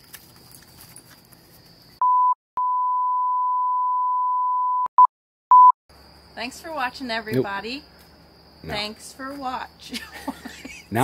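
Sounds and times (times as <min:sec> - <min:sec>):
pure bleep tone: 0:02.0 - 0:05.8.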